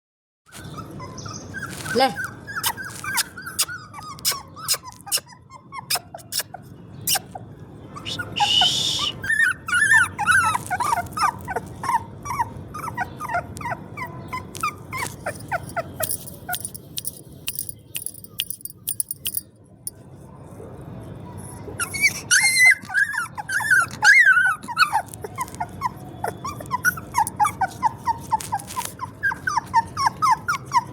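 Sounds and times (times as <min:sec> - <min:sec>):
puppy squeaking and whimpering: 0:00.5 - 0:19.4, 0:21.3 - 0:30.9
sharp clicks: 0:16.0 - 0:19.5.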